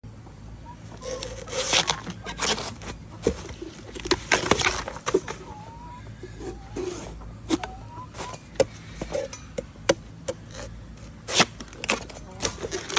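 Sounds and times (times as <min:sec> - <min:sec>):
blade cutting bamboo shoot: 0:09.9 - 0:12.9.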